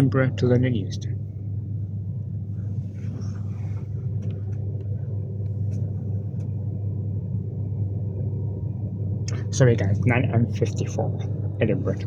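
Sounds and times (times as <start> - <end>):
train rumbling inside carriage: 2.2 - 6.7.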